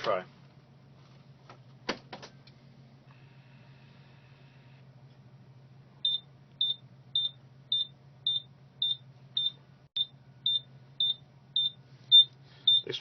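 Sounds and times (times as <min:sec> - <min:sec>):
low electrical hum: 0:00.0 - 0:13.0
short high-pitched warning beeps: 0:06.1 - 0:12.9.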